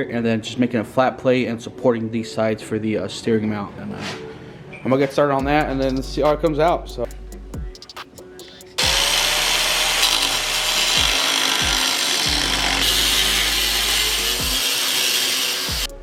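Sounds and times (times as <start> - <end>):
angle grinder cutting steel: 8.7 - 16.0.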